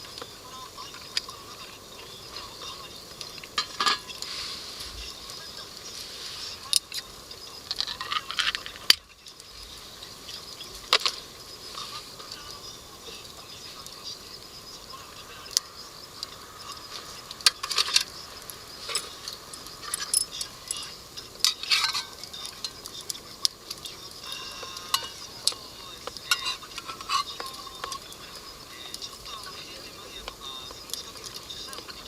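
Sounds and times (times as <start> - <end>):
faint steady hiss: 0.0 - 32.0
utensils clinking on cookware: 3.5 - 4.3, 18.8 - 23.2, 23.8 - 28.2.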